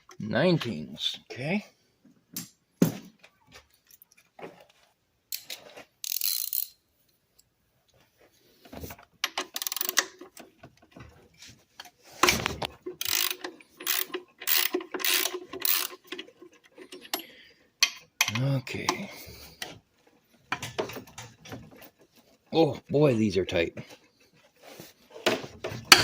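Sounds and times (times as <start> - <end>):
ratchet wrench clicking: 6.0 - 6.8, 9.2 - 10.1, 13.0 - 16.0.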